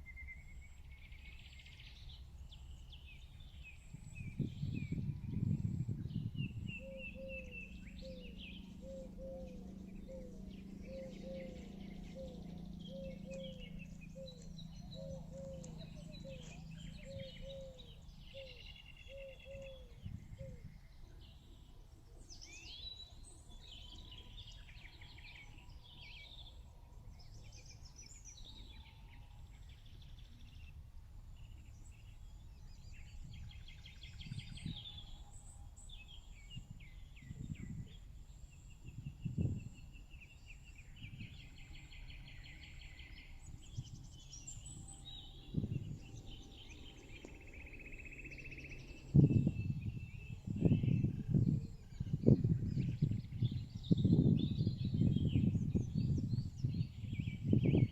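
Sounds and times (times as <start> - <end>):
birds chirping and trilling: 0.1 - 30.8, 31.4 - 57.9
steady low hum: 3.7 - 22.0, 30.3 - 57.9.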